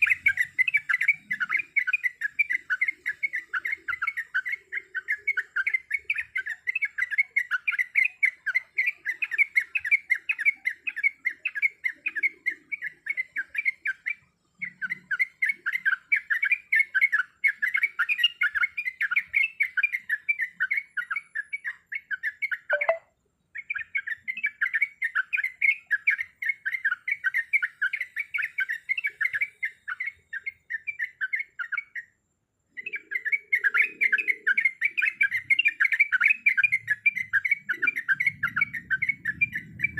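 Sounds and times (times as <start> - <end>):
bird chattering rapid notes: 22.7 - 23.0.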